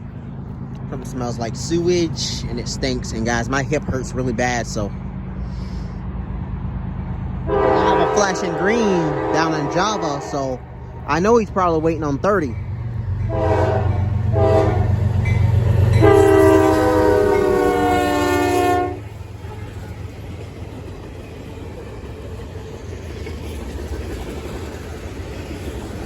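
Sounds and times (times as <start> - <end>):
locomotive engine rumble: 0.0 - 26.0
train rolling noise: 0.0 - 26.0
locomotive air horn blasts: 7.5 - 10.5, 13.3 - 15.0, 15.9 - 20.0.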